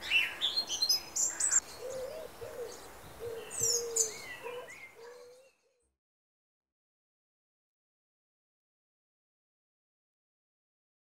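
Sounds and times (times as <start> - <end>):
low wavering bird call: 1.3 - 5.7.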